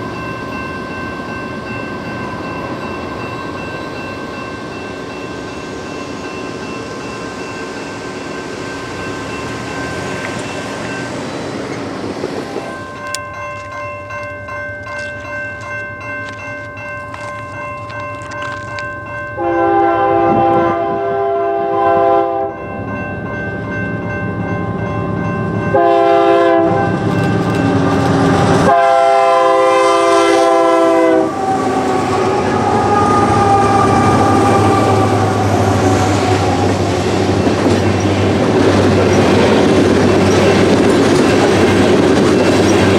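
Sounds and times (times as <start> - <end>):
train rumble: 0.0 - 42.9
locomotive air horn: 19.4 - 22.5, 25.7 - 27.1, 27.7 - 37.1
wheels clicking on rails: 26.8 - 28.7, 31.2 - 42.9.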